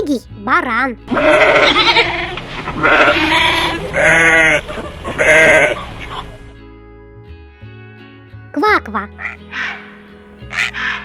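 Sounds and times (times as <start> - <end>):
sheep bleating: 1.1 - 6.1.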